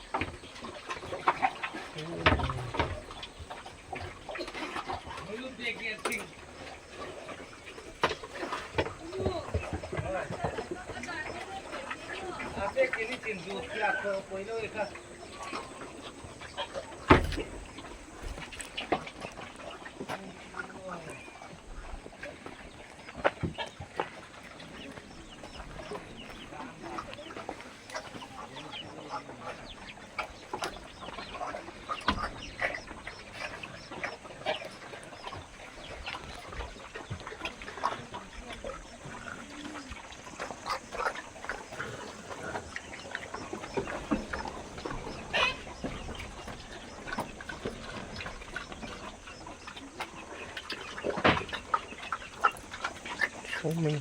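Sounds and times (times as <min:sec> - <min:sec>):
chickens clucking: 0:00.0 - 0:54.0
sharp knocks: 0:17.0 - 0:17.8
loud chicken calls: 0:44.4 - 0:46.2.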